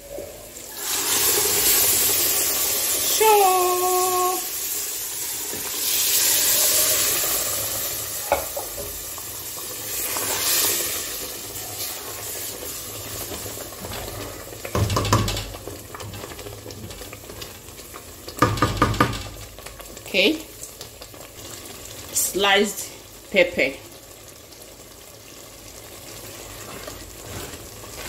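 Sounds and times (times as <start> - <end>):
loud sizzle in hot oil: 0.0 - 28.0
wooden spoon scraping pot: 26.2 - 28.0.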